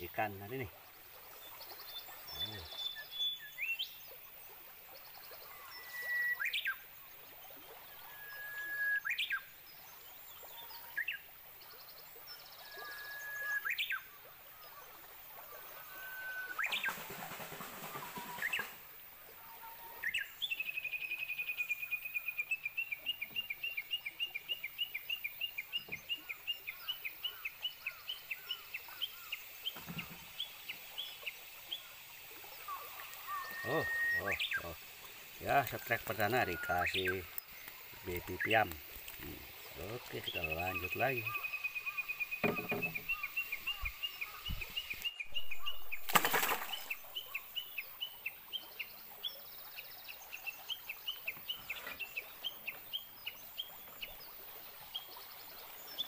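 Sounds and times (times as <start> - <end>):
whistled bird calls: 1.9 - 3.9, 5.4 - 6.8, 7.9 - 9.5, 12.6 - 14.8, 15.5 - 17.0, 17.6 - 18.8, 32.6 - 34.8, 35.4 - 48.7.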